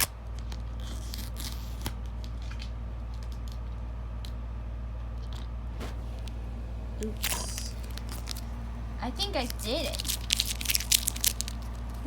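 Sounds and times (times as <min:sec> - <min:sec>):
steady low hum: 0:00.0 - 0:12.0
plastic case clicks and crinkles: 0:09.9 - 0:12.0.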